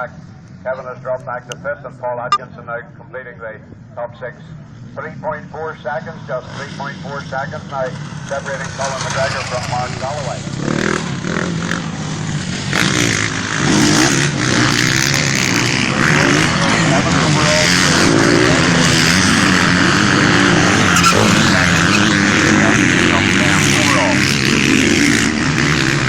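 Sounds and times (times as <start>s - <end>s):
motocross bikes revving: 6.1s - 26.0s.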